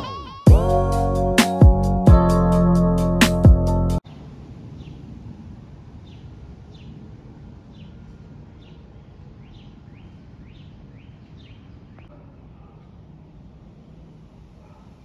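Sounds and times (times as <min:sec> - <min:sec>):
bird chirping: 0:07.7 - 0:12.2.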